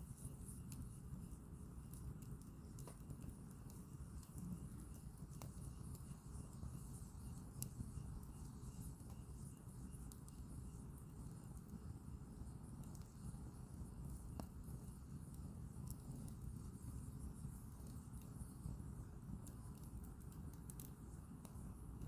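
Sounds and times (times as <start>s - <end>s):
campfire flames rumbling: 0.0s - 22.0s
wood crackling and popping: 1.9s - 6.1s.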